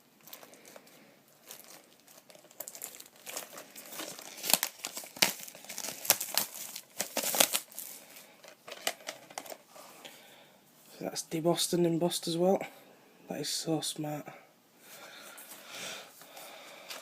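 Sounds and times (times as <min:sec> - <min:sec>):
plastic wrap crinkling and tearing: 0:00.2 - 0:09.6.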